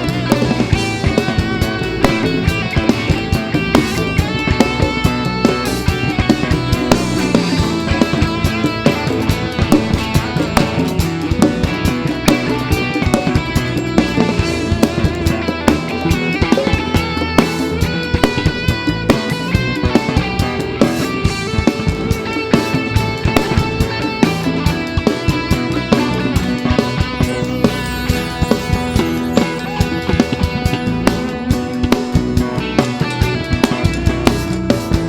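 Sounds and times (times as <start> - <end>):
bass guitar: 0.0 - 35.0
drum kit beat: 0.0 - 35.0
electric and acoustic guitars: 0.0 - 35.0.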